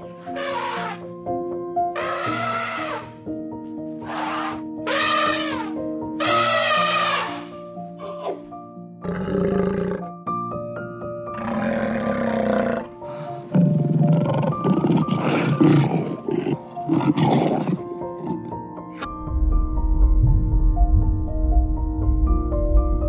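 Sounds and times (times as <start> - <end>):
soft background music: 0.0 - 23.0
large animal roaring: 0.3 - 1.0, 2.0 - 3.1, 9.0 - 10.1, 11.3 - 18.6.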